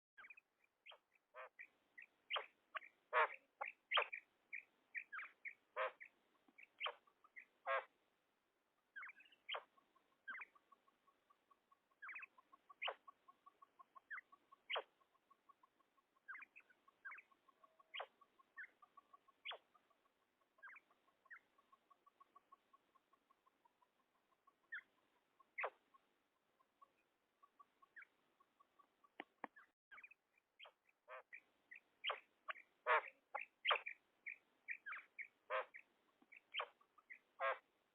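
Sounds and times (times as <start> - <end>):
quail calling: 0.2 - 7.9, 9.0 - 26.0, 26.6 - 31.4, 32.0 - 37.6.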